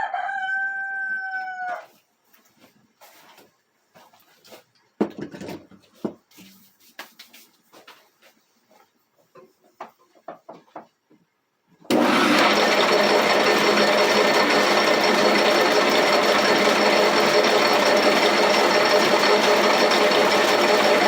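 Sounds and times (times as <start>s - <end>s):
light knocks and clatter: 5.0s - 6.3s
roller mill rattling: 11.9s - 21.0s.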